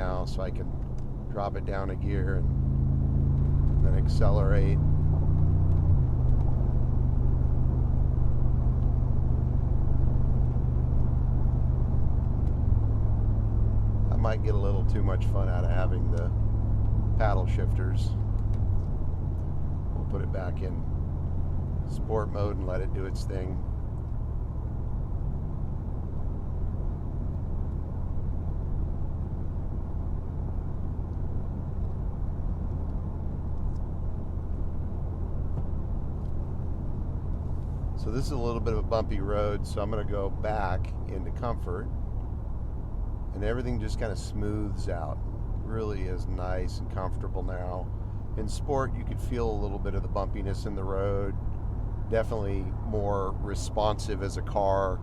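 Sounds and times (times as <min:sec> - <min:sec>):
car engine drone from inside cabin: 0:00.0 - 0:55.0
road noise: 0:00.0 - 0:55.0.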